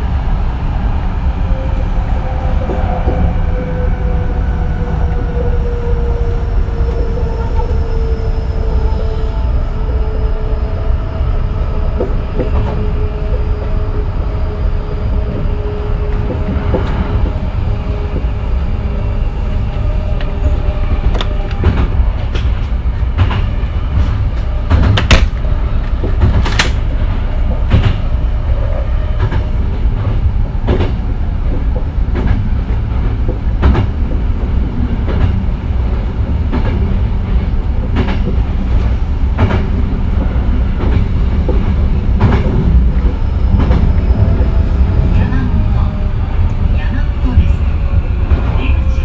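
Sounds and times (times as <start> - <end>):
electric train rumbling: 0.0 - 49.0
rail joint clacks: 11.6 - 14.3, 14.9 - 49.0.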